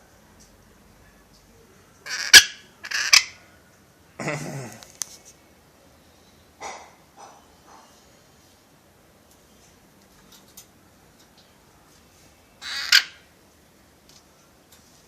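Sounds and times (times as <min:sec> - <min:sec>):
parrot harsh calls: 0:02.0 - 0:03.4, 0:12.6 - 0:13.3.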